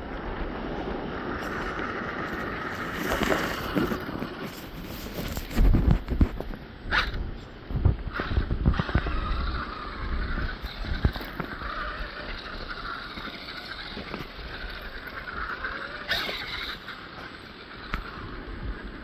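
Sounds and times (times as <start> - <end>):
wind rumble on microphone: 0.0 - 16.8, 17.7 - 19.0
rc car motor whining: 0.7 - 5.5, 6.9 - 7.2, 8.0 - 19.0.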